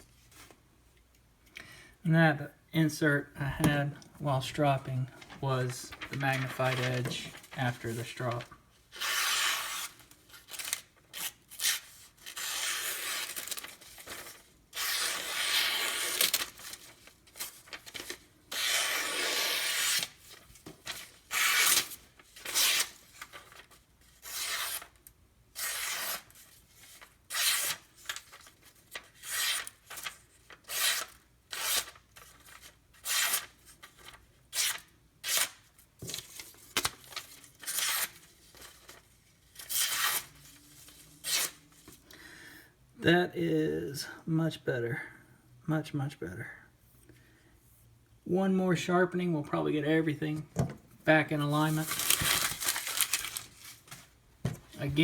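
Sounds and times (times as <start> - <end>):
knife slicing paper: 6.3 - 16.8, 17.4 - 20.2, 24.2 - 25.0, 25.6 - 26.4, 51.7 - 53.9.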